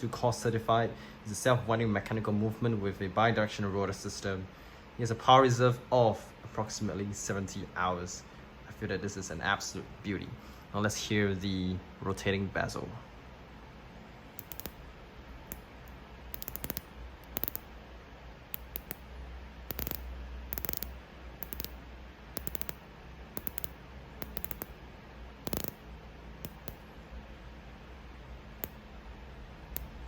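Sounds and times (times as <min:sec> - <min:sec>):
watch bezel ratcheting clicks: 0:14.4 - 0:14.8, 0:16.3 - 0:17.7, 0:18.5 - 0:19.0, 0:19.7 - 0:21.8, 0:22.4 - 0:22.8, 0:23.4 - 0:24.8, 0:25.4 - 0:25.8, 0:26.4 - 0:26.8, 0:28.6 - 0:28.8, 0:29.7 - 0:30.0.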